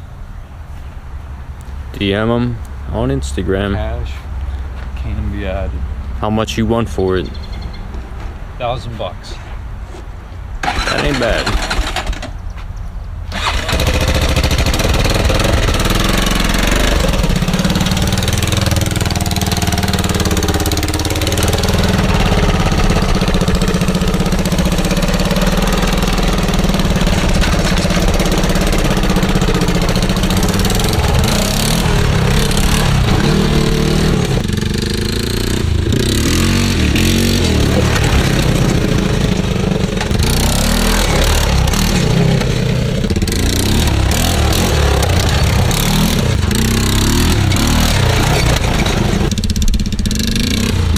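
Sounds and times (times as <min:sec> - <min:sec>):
quad engine revving: 0:10.6 - 0:12.4, 0:13.3 - 0:50.9.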